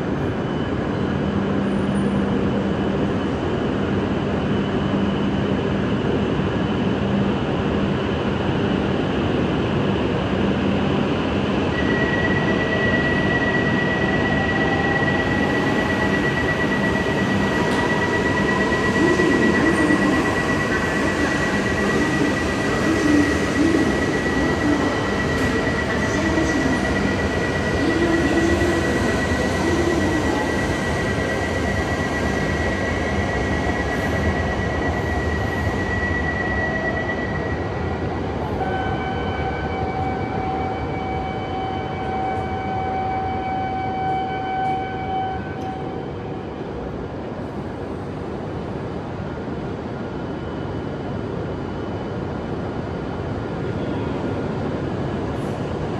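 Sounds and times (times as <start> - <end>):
train rumble: 0.0 - 55.9
high steady whine: 11.6 - 45.8.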